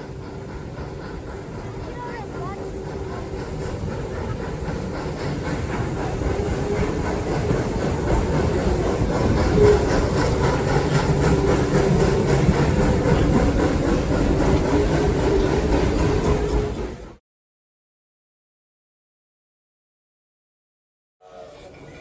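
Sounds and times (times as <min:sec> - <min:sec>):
wheels clacking over rail joints: 0:00.0 - 0:16.8
train cars rumbling: 0:00.0 - 0:17.2.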